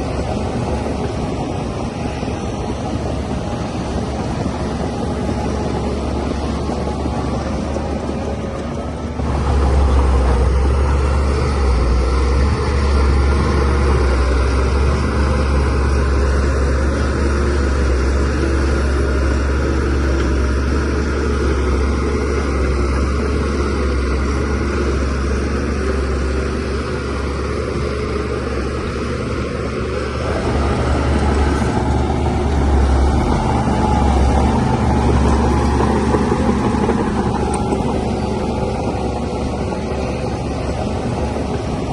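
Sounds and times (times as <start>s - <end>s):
bulldozer diesel engine droning: 0.0s - 41.9s.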